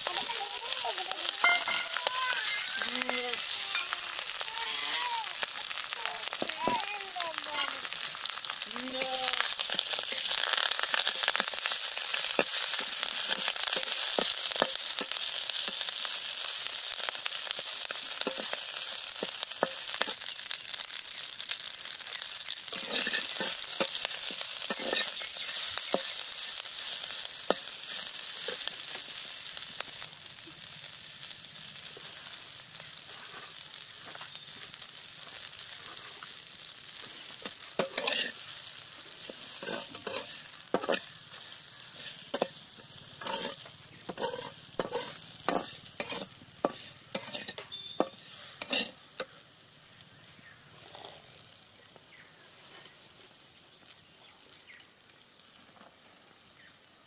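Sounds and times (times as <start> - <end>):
leaves sizzling in a pan: 0.0 - 57.0
metal spatula scraping a pan: 22.7 - 28.7, 37.3 - 38.5, 39.2 - 49.3.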